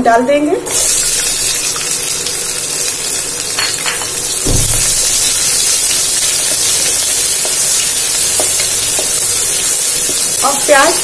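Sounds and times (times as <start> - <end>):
onion sizzling in hot oil: 0.6 - 11.0
dull thump: 4.4 - 5.1.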